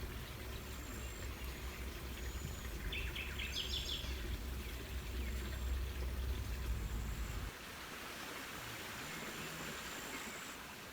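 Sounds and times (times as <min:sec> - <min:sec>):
songbird chirping: 0:02.2 - 0:06.2
steady low rumble: 0:04.2 - 0:07.5.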